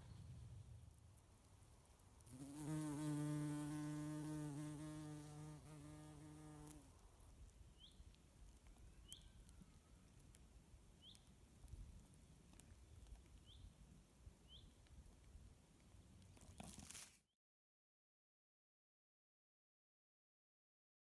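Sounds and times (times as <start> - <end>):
small bird chirping: 8.7 - 10.2.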